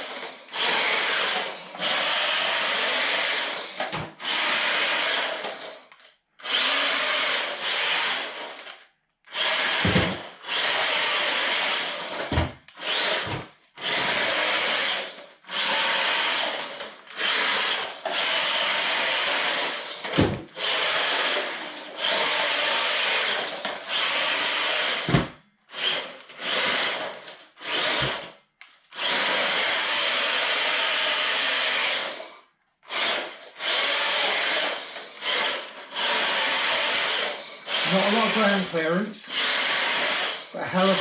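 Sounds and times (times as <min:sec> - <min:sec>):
electric motor whining: 0:33.1 - 0:41.0.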